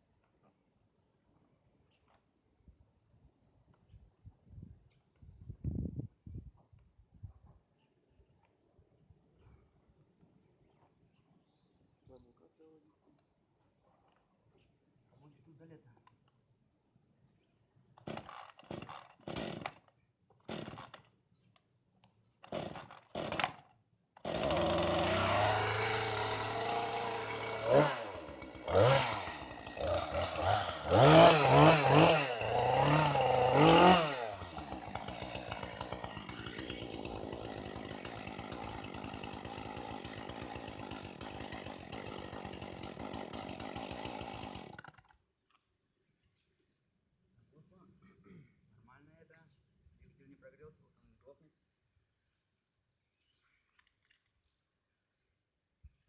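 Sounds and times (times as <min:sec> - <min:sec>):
chainsaw engine running: 0:18.0 - 0:19.8, 0:20.5 - 0:21.0, 0:22.5 - 0:23.6, 0:24.2 - 0:45.0
starter cord pulls: 0:18.0 - 0:21.1.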